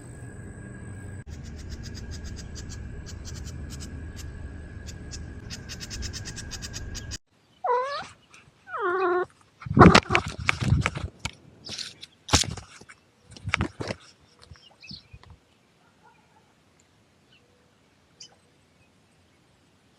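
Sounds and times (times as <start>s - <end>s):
low rumble with clicking: 0.0s - 7.2s
cat meowing: 7.6s - 8.1s, 8.7s - 9.3s.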